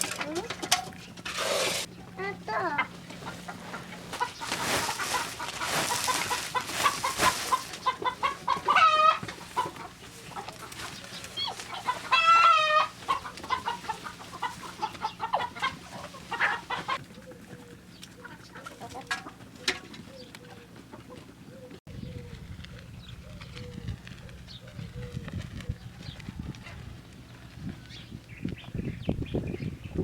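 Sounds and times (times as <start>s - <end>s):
chickens clucking: 0.0s - 22.7s
rustling: 2.6s - 17.0s
loud drawn-out chicken calls: 2.9s - 19.3s.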